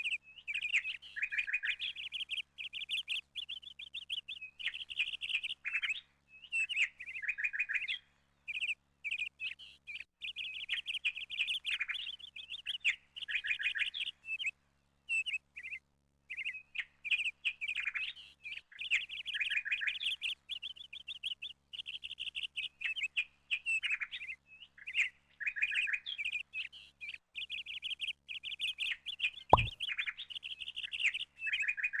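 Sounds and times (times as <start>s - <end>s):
small birds chirping: 0.0s - 32.0s
sharp knock: 29.6s - 29.8s.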